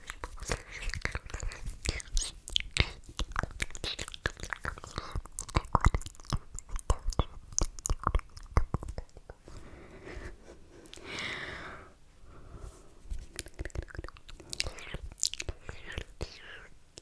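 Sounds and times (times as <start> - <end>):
wet mouth clicks and smacks: 0.0 - 9.4, 13.2 - 17.0.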